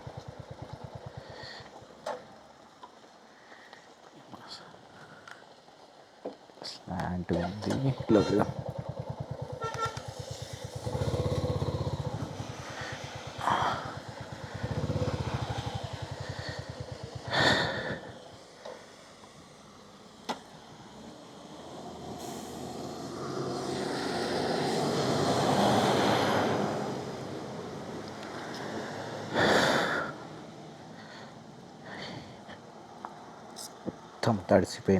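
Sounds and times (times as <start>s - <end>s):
motorcycle engine running: 0.0s - 2.5s, 7.5s - 18.6s.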